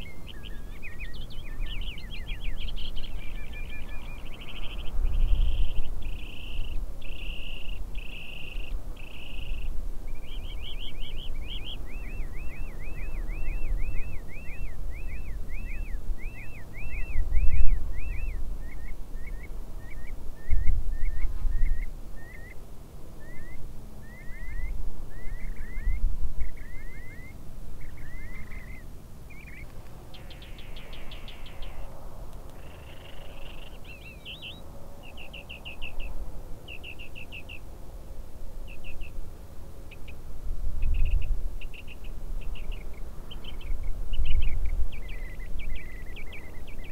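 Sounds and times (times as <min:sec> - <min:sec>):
birds chirping: 0:00.0 - 0:37.8, 0:38.6 - 0:46.9.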